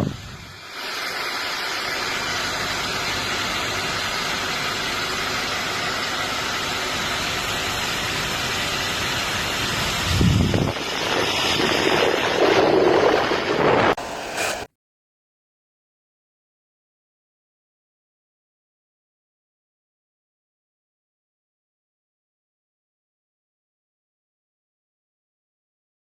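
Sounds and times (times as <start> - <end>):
hair dryer blowing air: 0.0 - 14.7.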